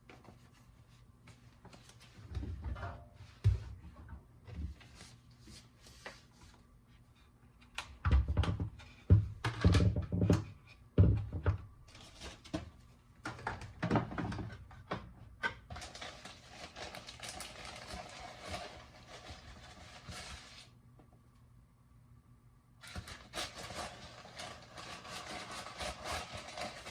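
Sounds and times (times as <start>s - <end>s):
objects knocking and thumping: 8.0s - 15.8s.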